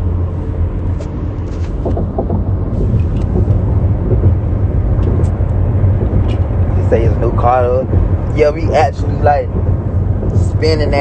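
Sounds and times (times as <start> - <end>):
car rumbling: 0.0 - 11.0.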